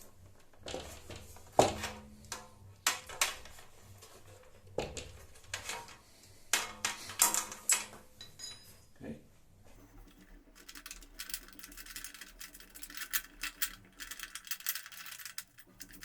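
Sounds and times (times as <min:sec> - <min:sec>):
metal parts knocking and clanking: 0:09.8 - 0:16.0.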